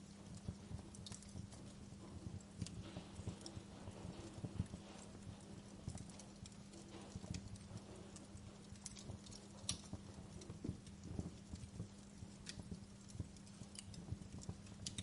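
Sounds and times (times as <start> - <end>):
fireplace crackling: 0.0 - 15.0.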